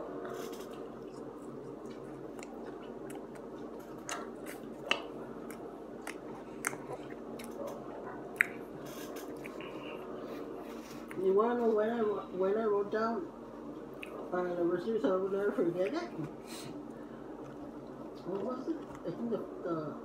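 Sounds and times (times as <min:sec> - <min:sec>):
steady low hum: 0:00.0 - 0:20.0
person chewing fries: 0:00.3 - 0:11.2
mouth clicks: 0:08.4 - 0:08.6.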